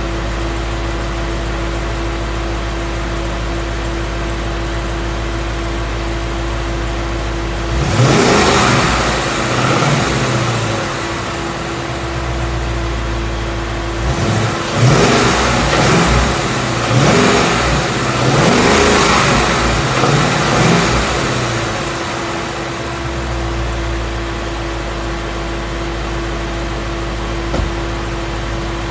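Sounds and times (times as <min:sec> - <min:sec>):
car engine revving: 0:07.6 - 0:24.5.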